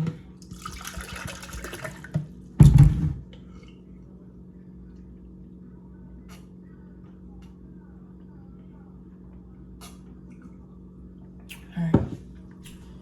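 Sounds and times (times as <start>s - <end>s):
drink pouring into a cup: 0.4s - 2.1s.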